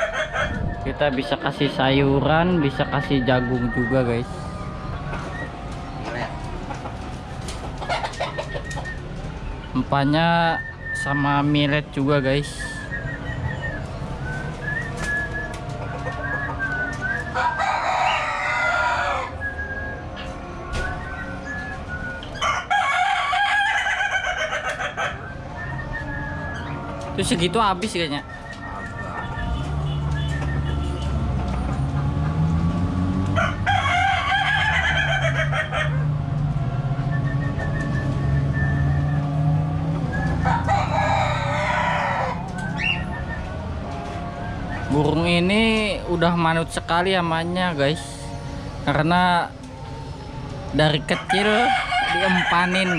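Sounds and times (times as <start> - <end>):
rooster crowing: 0.0 - 0.7, 15.8 - 20.0, 22.4 - 27.0, 33.3 - 36.2, 39.0 - 44.8, 49.9 - 52.9
harsh bird call: 40.0 - 43.5
budgerigars chirping: 42.8 - 43.1.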